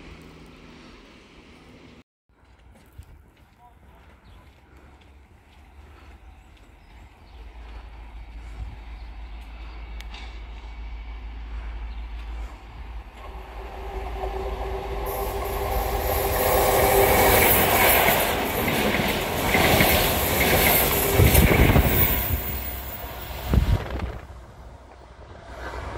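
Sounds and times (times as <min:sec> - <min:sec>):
diesel train passing: 0:00.0 - 0:02.6, 0:03.9 - 0:25.9
wheels clacking over rail joints: 0:15.0 - 0:22.9.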